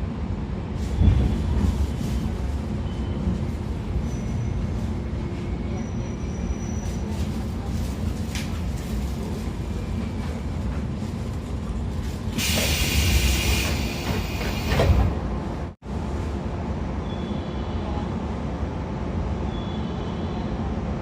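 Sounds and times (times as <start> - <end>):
train running rumble: 0.0 - 17.0
hiss: 12.4 - 14.8.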